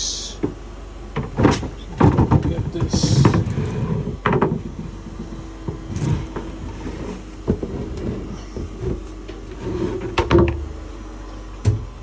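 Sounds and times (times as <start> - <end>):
low machinery hum: 0.0 - 12.0
cover knocks and clatters: 1.2 - 6.6.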